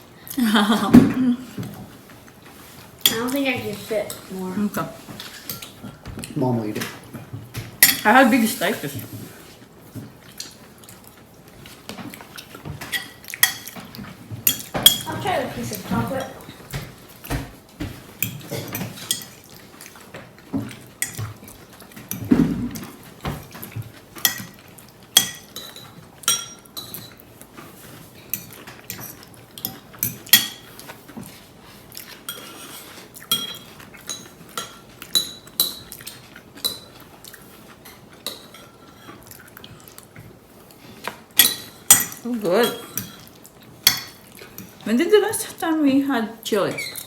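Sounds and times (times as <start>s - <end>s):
cutlery clinking against dishes: 7.6s - 8.2s, 11.9s - 19.6s, 20.2s - 27.2s, 28.3s - 31.4s, 32.0s - 37.0s, 37.8s - 39.2s, 41.1s - 44.8s.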